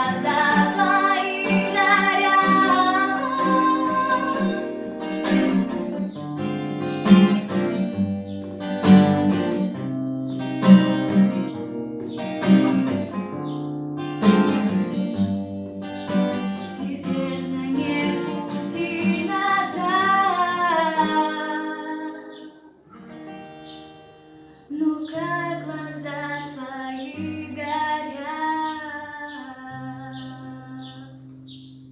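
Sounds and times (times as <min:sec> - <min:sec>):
woman singing: 0:00.0 - 0:05.8, 0:16.4 - 0:22.7, 0:24.7 - 0:31.4
acoustic guitar strumming: 0:00.0 - 0:31.9.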